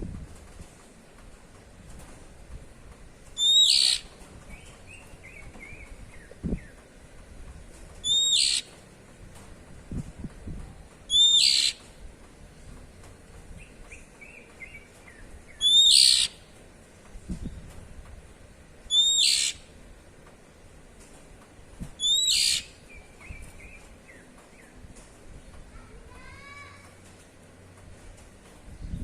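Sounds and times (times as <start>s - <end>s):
bird drawn-out calls: 3.4s - 4.1s, 8.0s - 8.7s, 11.1s - 11.8s, 15.6s - 16.4s, 18.9s - 19.7s, 22.0s - 22.8s.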